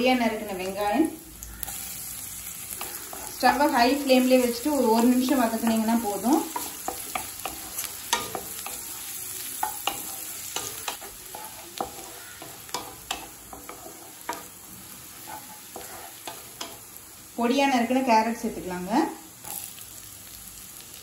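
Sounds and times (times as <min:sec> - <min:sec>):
onions sizzling in oil: 0:00.0 - 0:21.0
spatula scraping pan: 0:01.7 - 0:16.9.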